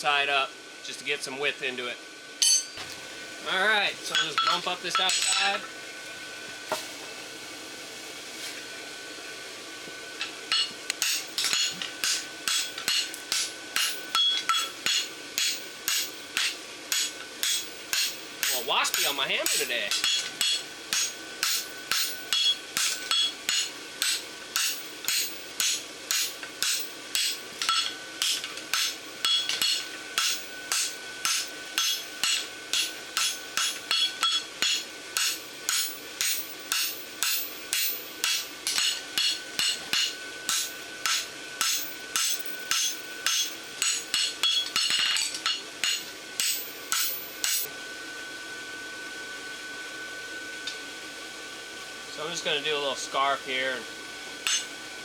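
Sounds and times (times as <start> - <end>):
steady hum: 0.0 - 55.0
hammer striking steel on anvil: 2.4 - 2.8, 4.1 - 5.7, 10.2 - 47.7, 54.4 - 54.7.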